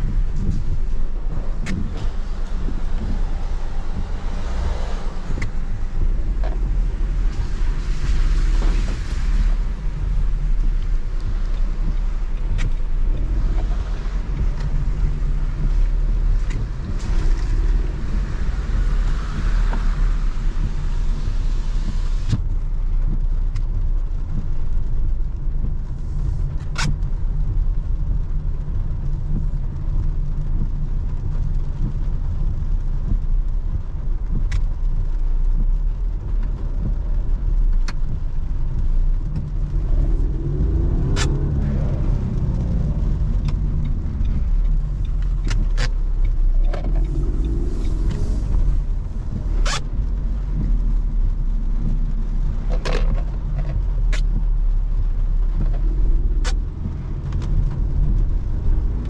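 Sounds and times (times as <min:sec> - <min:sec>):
car engine pulling steadily: 0:00.0 - 0:59.0
tyre hiss on wet road: 0:17.0 - 0:22.6, 0:46.9 - 0:51.1.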